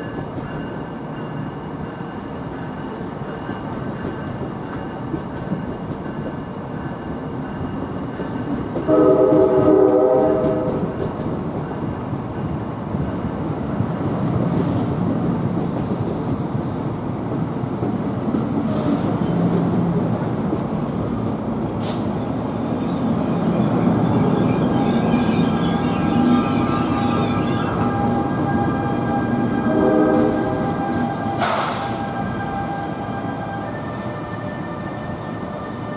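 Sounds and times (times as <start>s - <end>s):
train rumbling through station: 0.0s - 35.9s
train horn chord: 8.9s - 10.9s, 24.4s - 35.3s.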